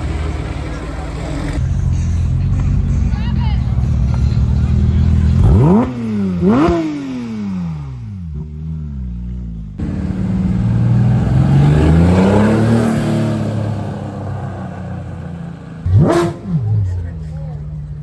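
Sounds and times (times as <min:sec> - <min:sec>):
car engine accelerating: 0:00.0 - 0:18.0
car engine revving: 0:00.0 - 0:18.0.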